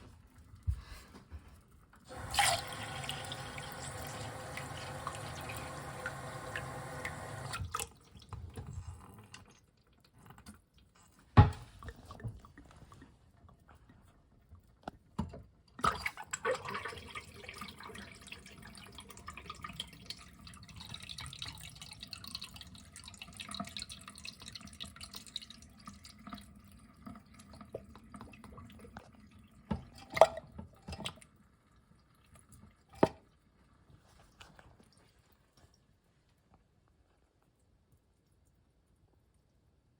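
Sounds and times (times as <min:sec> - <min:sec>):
toilet flush click: 0:02.1 - 0:07.9
water dripping: 0:02.1 - 0:08.7, 0:15.9 - 0:31.4
water pouring and trickling: 0:02.1 - 0:10.1, 0:15.9 - 0:33.3.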